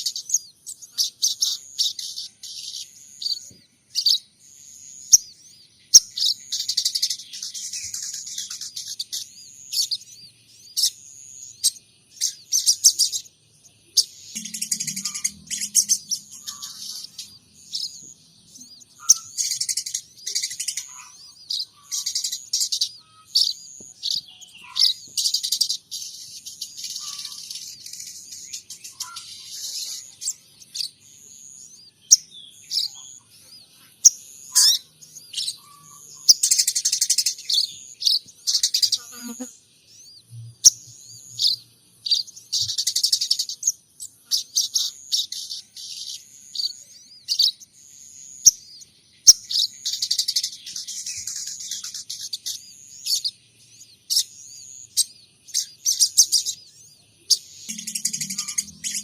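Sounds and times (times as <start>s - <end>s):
songbird chirping and twittering: 0.0s - 59.0s.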